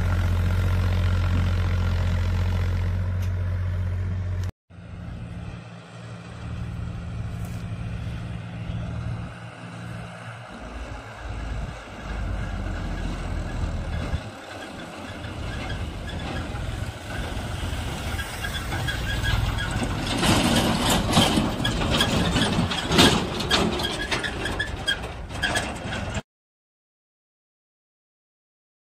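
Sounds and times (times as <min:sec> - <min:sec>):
diesel tractor engine running: 0:00.0 - 0:26.2
loud rattling and knocking: 0:18.5 - 0:26.2.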